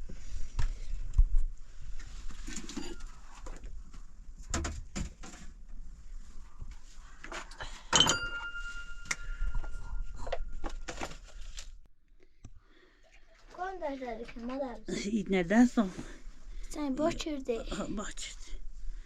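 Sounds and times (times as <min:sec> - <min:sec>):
ringing metal clank: 0:07.9 - 0:10.9.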